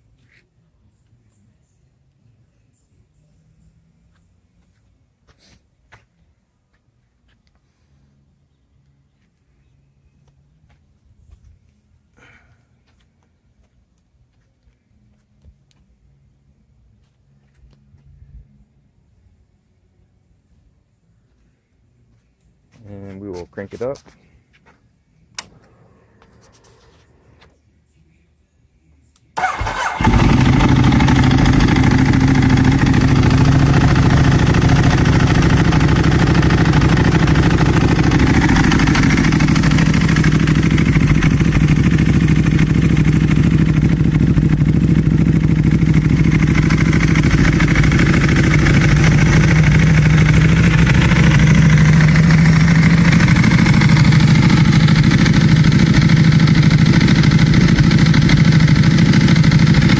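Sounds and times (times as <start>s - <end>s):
motorcycle starter cranking: 29.4s - 33.9s
motorcycle engine idling: 29.4s - 59.9s.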